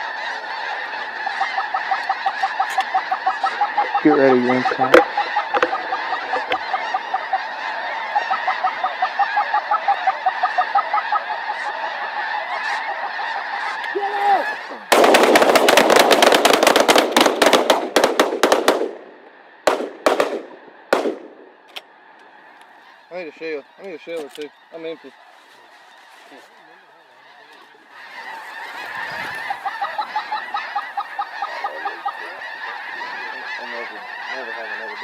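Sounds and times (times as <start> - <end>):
geese honking: 0.0 - 35.0
shotgun fire: 14.9 - 21.5.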